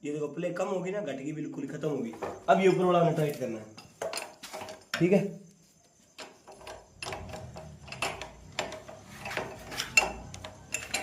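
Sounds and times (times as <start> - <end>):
wrench metallic clicks: 6.2 - 11.0.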